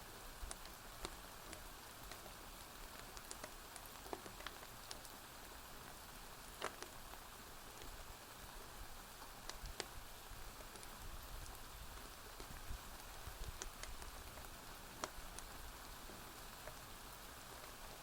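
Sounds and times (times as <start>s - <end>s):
rain hiss: 0.0s - 18.0s
wood fire crackling and popping: 0.4s - 5.2s, 5.8s - 8.1s, 9.2s - 10.0s, 10.6s - 15.7s.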